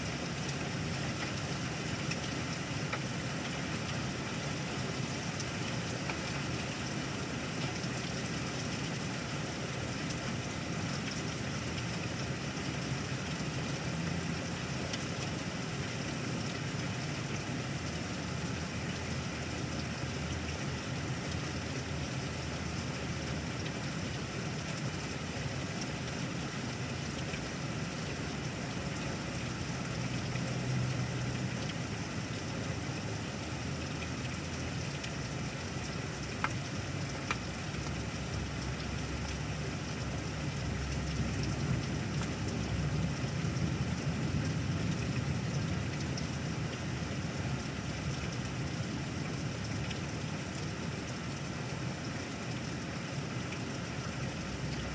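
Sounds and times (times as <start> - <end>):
steady rain hissing: 0.0 - 54.9.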